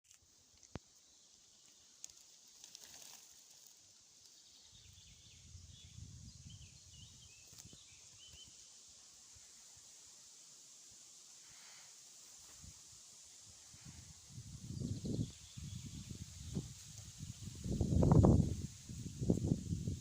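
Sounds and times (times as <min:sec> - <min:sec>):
steady hiss: 0:00.1 - 0:20.0
small bird chirping: 0:00.6 - 0:08.8, 0:14.6 - 0:17.4.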